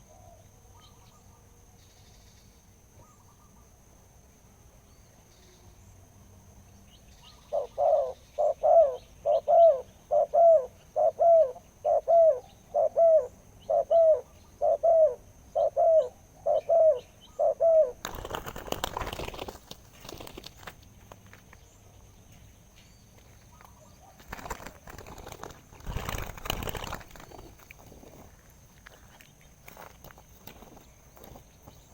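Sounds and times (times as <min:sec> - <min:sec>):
dove cooing: 0:07.5 - 0:19.5, 0:23.5 - 0:28.3
rustling noise: 0:24.2 - 0:31.9.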